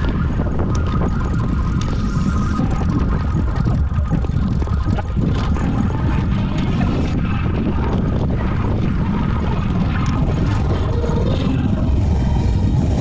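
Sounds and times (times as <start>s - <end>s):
bicycle road noise: 0.0s - 13.0s
wind rumble: 0.0s - 13.0s.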